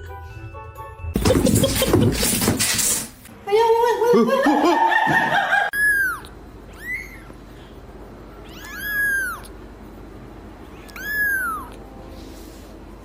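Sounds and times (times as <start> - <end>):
cat meowing: 5.8 - 7.4, 8.4 - 9.6, 10.7 - 11.8.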